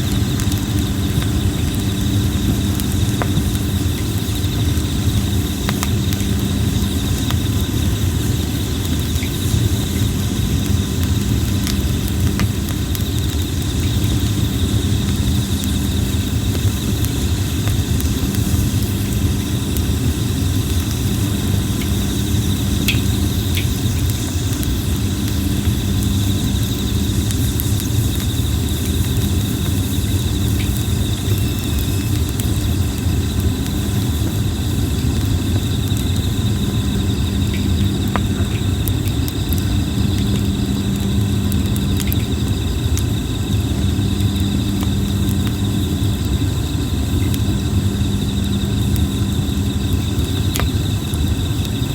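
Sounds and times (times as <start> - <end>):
campfire crackling and popping: 0.0 - 51.9
insects trilling: 0.0 - 51.9
low rumble and hum: 0.0 - 51.9.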